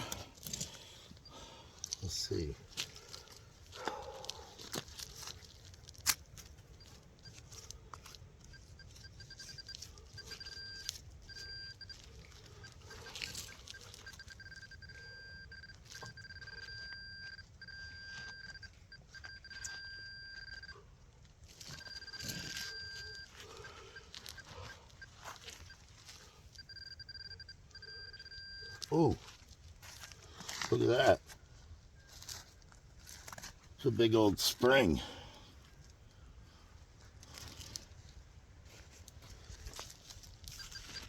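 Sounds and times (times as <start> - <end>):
digging in wet ground: 0.0 - 41.0
metal detector beeping: 6.4 - 20.8, 21.4 - 31.3, 39.5 - 41.0.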